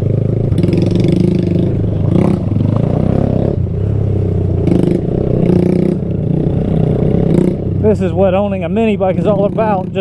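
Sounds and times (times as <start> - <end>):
mini bike engine revving: 0.0 - 7.8.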